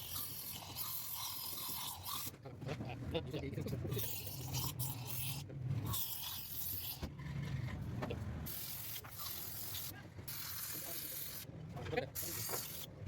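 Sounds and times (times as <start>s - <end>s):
hissing spray bursts: 8.5s - 11.5s, 12.2s - 12.9s.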